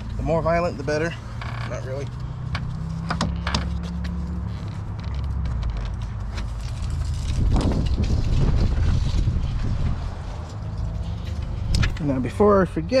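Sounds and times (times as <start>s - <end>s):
steady low rumble: 4.3s - 13.0s.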